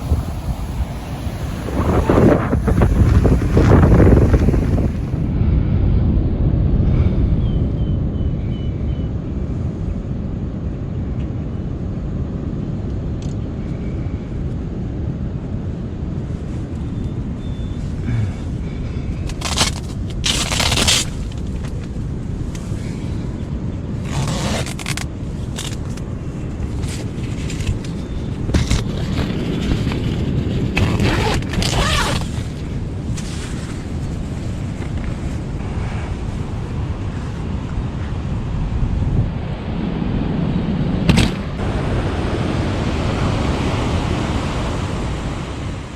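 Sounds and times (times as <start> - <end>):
hissing surges: 0.0 - 5.3
ocean surf: 0.0 - 5.5, 31.9 - 45.9
wind buffeting microphone: 0.0 - 45.9.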